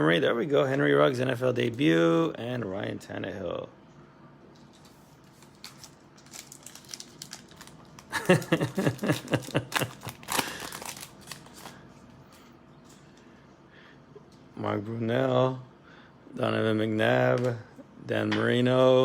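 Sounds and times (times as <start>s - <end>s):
wrapper crinkling and tearing: 4.6s - 11.8s
cards shuffling: 8.7s - 11.8s.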